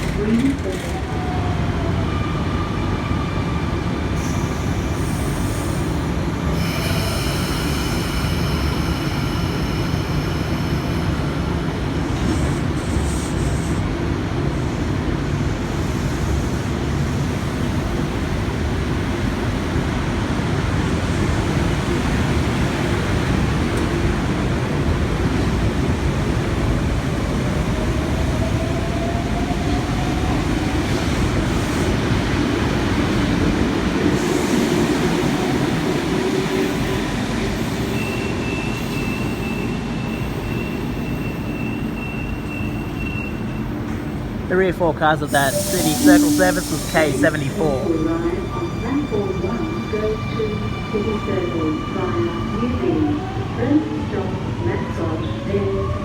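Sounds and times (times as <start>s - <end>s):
electric train rumbling: 0.0s - 56.0s
train wheel squeals: 4.2s - 13.8s, 36.4s - 44.2s.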